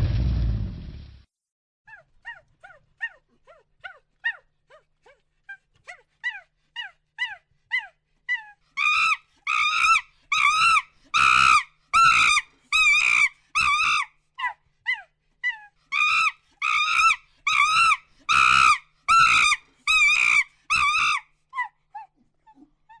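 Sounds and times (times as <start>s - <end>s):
primate calling: 1.9s - 23.0s.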